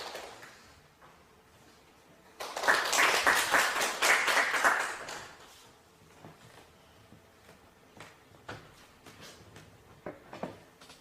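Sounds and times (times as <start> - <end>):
sharp claps: 2.4 - 5.5.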